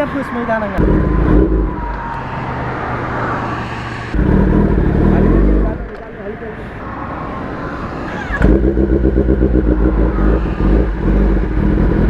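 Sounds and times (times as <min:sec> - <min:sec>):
loud motorcycle engine running: 0:04.2 - 0:06.0, 0:08.4 - 0:12.0.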